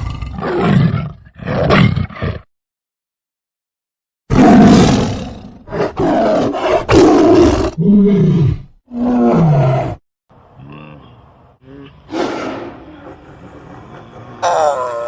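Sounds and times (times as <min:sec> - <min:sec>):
tiger roaring and growling: 0:00.0 - 0:02.5, 0:04.3 - 0:15.0
tiger moaning calls: 0:10.5 - 0:15.0.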